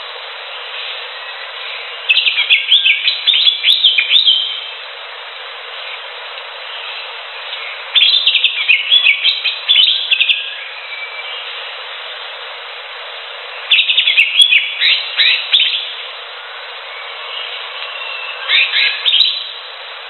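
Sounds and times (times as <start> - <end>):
steady hiss: 0.0 - 20.0
bird singing whistled notes: 0.8 - 4.7, 6.7 - 11.6, 13.5 - 16.0, 16.9 - 19.6.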